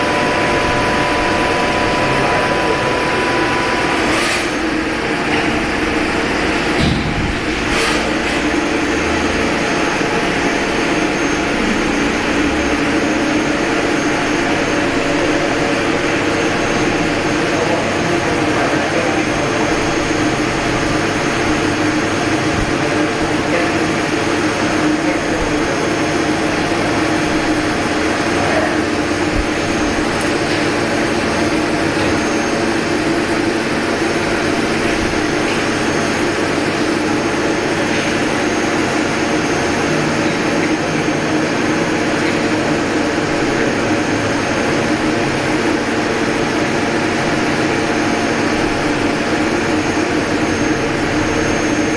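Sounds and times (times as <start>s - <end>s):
thin high whine: 0.0s - 6.4s
lathe running: 0.0s - 6.8s.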